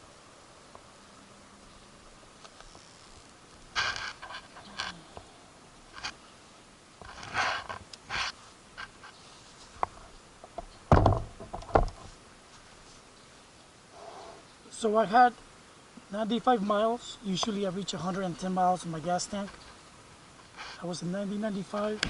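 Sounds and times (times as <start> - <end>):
handling rustling and scraping: 2.4 - 5.2, 7.0 - 13.4, 18.8 - 22.0
heavy knocks: 10.9 - 11.9.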